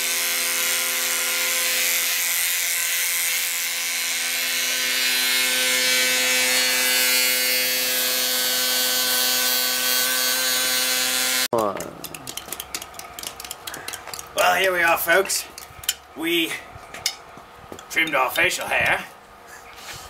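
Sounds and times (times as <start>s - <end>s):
electric beard trimmer buzzing: 0.0s - 11.5s.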